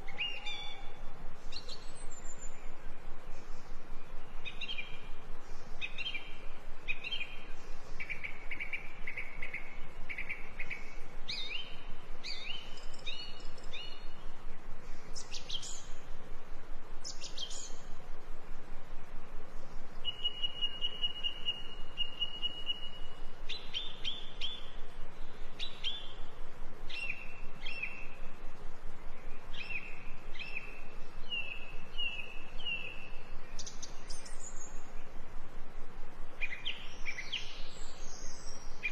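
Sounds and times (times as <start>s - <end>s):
small birds chirping: 0.0s - 16.2s, 17.0s - 18.0s, 19.6s - 35.3s, 36.3s - 38.9s
steady whistled bird note: 20.0s - 26.3s.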